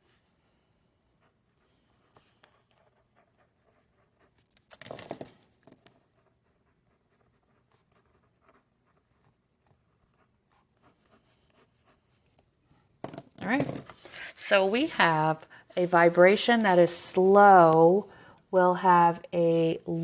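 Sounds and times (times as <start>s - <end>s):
pencil scratching while writing: 0.0s - 5.1s, 5.8s - 12.6s.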